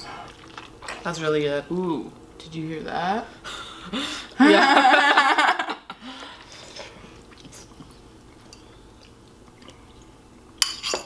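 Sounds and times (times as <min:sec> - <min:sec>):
person laughing or speaking: 0:03.6 - 0:06.0
person chewing: 0:06.6 - 0:10.1.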